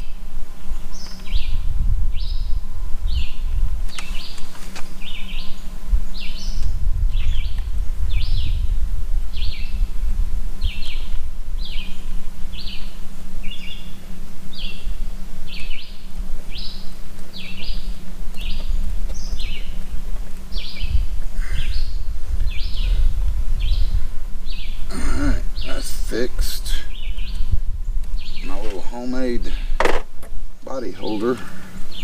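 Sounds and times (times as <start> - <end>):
bird chirping: 10.6 - 19.9, 20.5 - 24.9, 26.8 - 29.8, 30.6 - 32.0.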